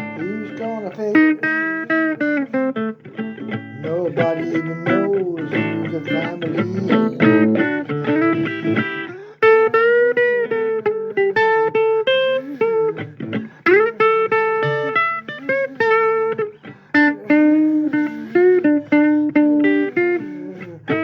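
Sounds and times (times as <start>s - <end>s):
blues guitar lead with bent notes: 0.0s - 21.0s.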